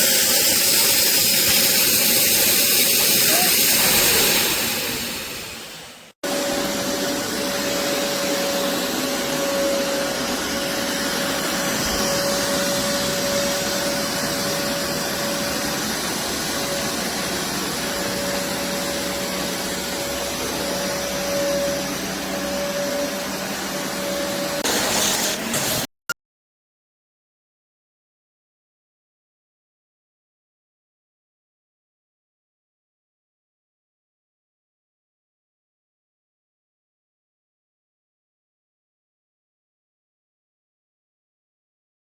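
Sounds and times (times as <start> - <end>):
carpet shampooer motor whining: 0.0 - 25.6.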